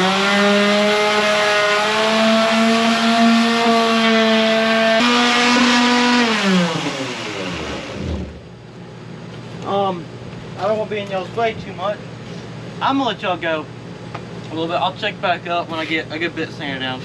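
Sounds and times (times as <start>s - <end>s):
electric sander motor humming: 0.0s - 8.4s.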